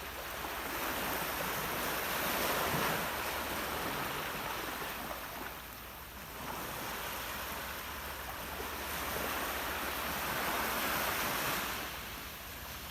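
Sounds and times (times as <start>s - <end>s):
sea waves washing on shore: 0.0s - 12.9s.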